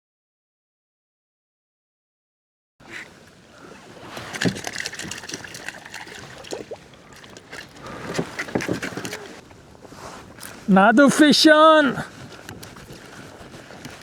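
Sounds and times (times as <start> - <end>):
water lapping against kayak hull: 2.8 - 10.8, 11.9 - 14.0.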